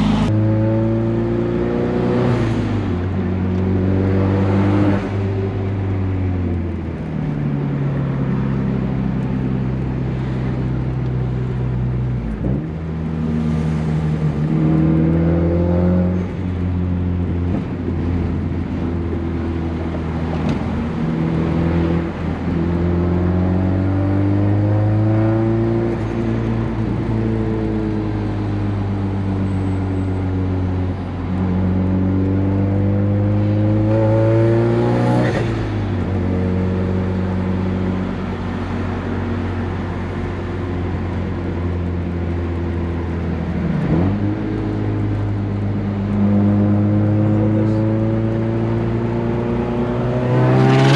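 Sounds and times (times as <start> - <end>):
car engine revving: 0.0 - 1.0, 42.6 - 50.9.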